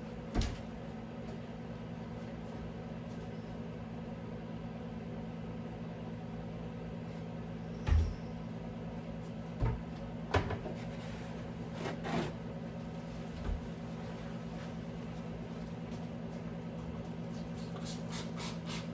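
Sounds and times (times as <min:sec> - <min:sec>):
steady low hum: 0:00.0 - 0:18.9
knocks and clunks of handled things: 0:09.6 - 0:10.9.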